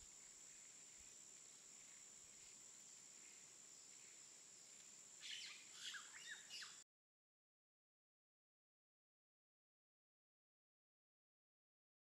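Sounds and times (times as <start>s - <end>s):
soft hiss: 0.0s - 6.8s
bird chirps: 5.2s - 6.8s.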